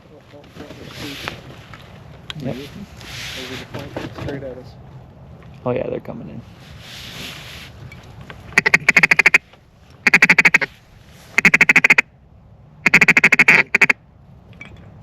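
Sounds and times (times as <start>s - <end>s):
duck call quacks: 8.6s - 9.4s, 10.0s - 10.7s, 11.4s - 12.1s, 12.8s - 14.0s.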